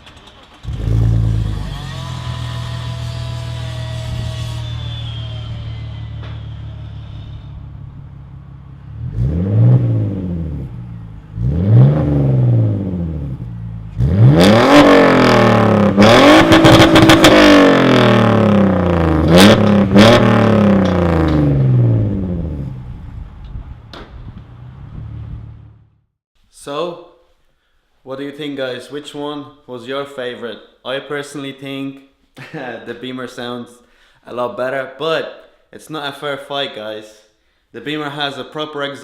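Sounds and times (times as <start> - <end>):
car engine revving: 0.0 - 23.3.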